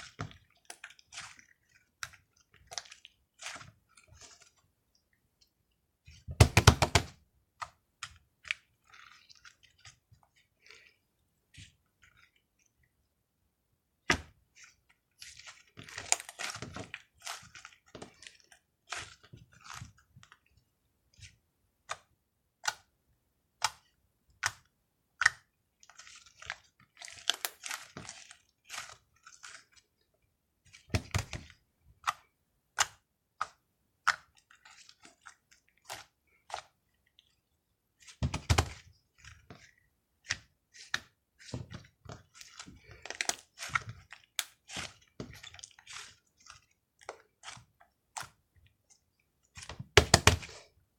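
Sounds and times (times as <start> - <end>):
slime squelching and popping: 6.1 - 11.0, 14.0 - 20.6, 23.6 - 29.8, 30.7 - 37.4, 38.0 - 50.7.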